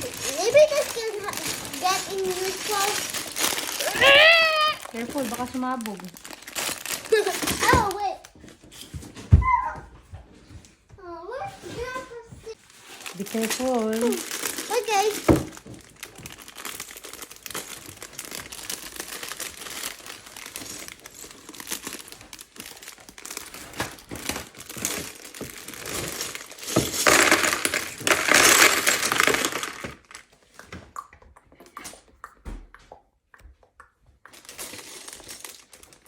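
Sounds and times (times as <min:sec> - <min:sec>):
plastic packaging crinkling: 0:00.0 - 0:08.7, 0:12.5 - 0:30.4, 0:34.3 - 0:36.0
small plastic pieces clicking: 0:24.7 - 0:30.2.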